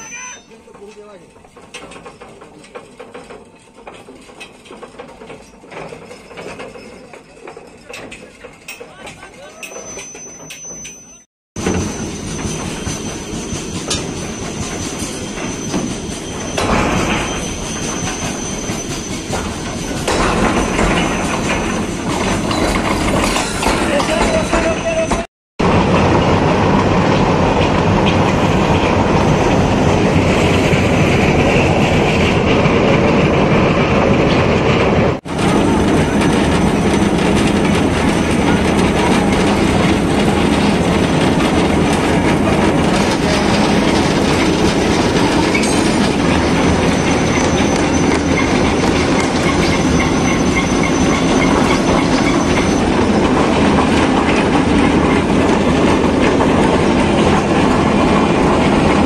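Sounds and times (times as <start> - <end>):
wheel squeal: 0.0 - 2.9, 5.3 - 25.2, 35.4 - 55.2
wheels rattling on rails: 0.0 - 59.0.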